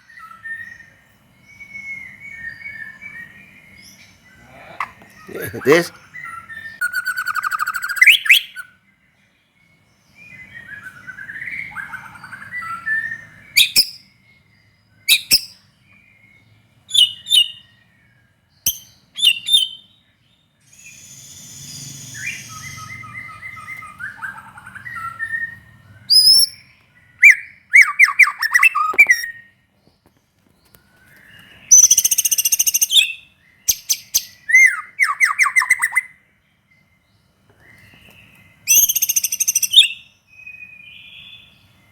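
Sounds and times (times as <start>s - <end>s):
songbird whistling and trilling: 0.0s - 4.2s, 4.9s - 8.8s, 9.7s - 29.6s, 30.9s - 41.9s
harsh buzzy bird call: 4.3s - 6.4s.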